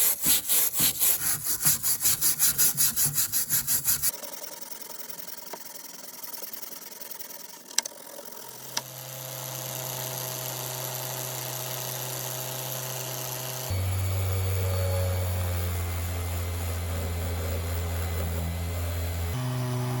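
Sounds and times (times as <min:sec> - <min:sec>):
electric motor humming: 0:08.5 - 0:20.0.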